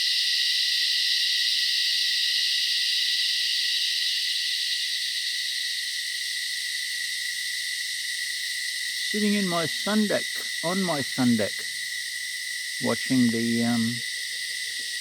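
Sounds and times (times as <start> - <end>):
cicadas buzzing: 0.0 - 15.0.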